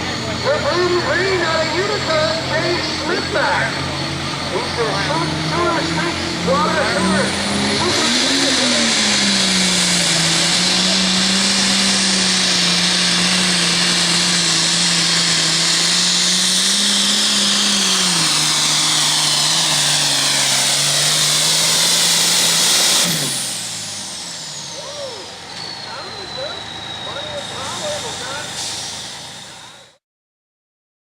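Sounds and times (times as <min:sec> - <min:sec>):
diesel tractor engine at full throttle: 0:00.0 - 0:30.0.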